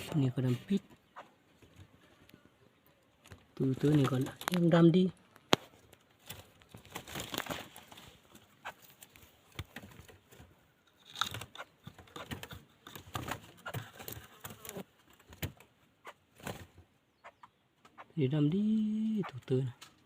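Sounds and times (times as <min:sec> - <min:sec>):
rustling and crinkling: 0:01.5 - 0:15.8.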